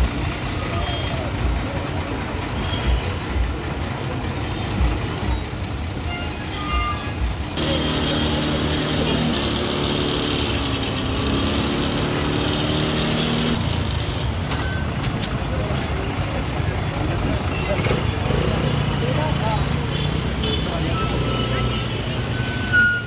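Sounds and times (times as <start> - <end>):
heavy trucks rumbling: 0.0 - 23.0.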